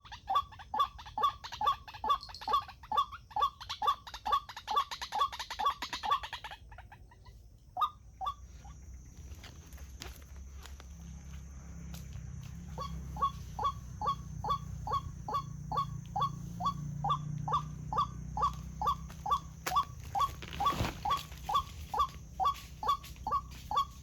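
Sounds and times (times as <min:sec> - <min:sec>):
waterhen calling: 0:12.7 - 0:24.0.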